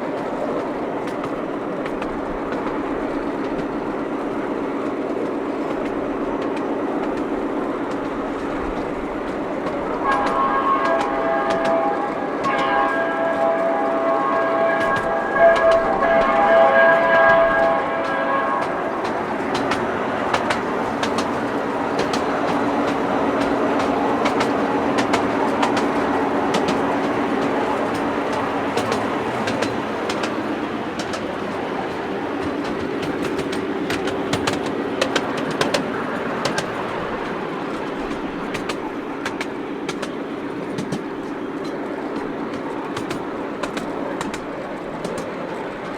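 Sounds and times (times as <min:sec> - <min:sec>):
wheels clicking over rail joints: 0:00.0 - 0:45.9.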